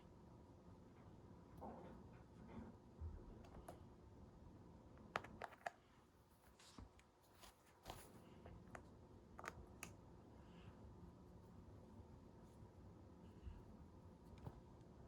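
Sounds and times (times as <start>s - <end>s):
faint clicks and taps: 6.6s - 10.0s.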